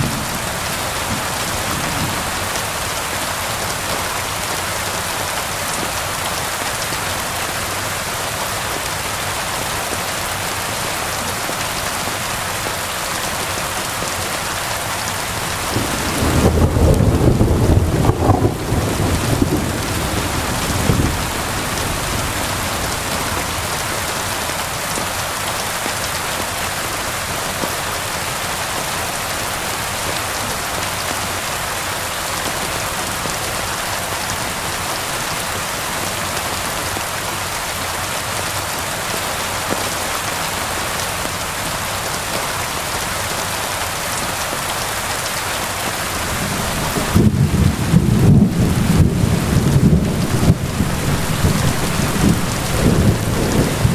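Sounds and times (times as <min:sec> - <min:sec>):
steady rain falling: 0:00.0 - 0:53.9
low thunder rumble: 0:15.6 - 0:23.9, 0:46.2 - 0:53.9.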